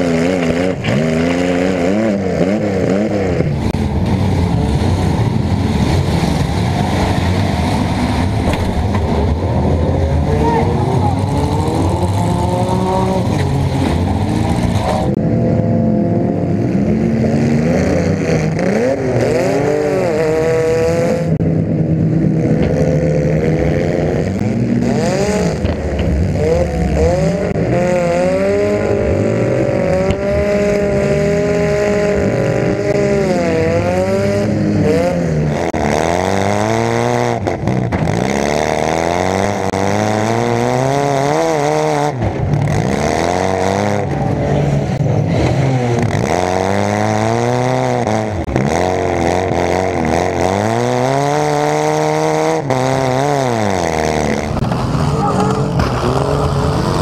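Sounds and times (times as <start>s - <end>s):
car engines revving: 0.0s - 57.0s
cars colliding bangs: 3.4s - 9.8s, 54.5s - 57.0s.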